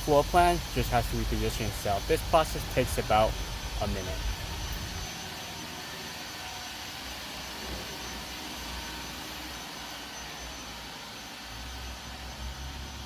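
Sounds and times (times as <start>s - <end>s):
faint high whine: 0.0s - 13.0s
robot vacuum whirring: 0.2s - 13.0s.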